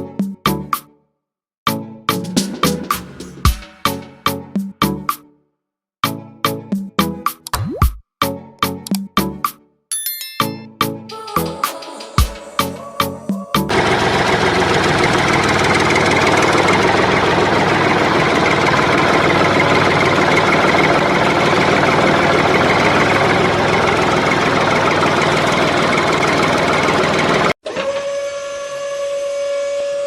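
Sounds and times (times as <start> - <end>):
small engine running steadily: 13.7 - 27.6.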